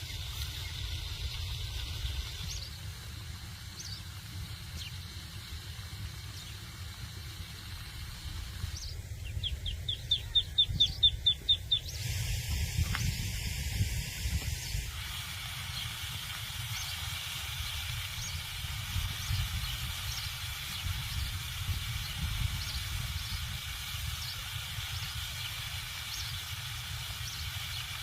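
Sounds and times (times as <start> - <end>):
songbird chirping: 8.6 - 12.0.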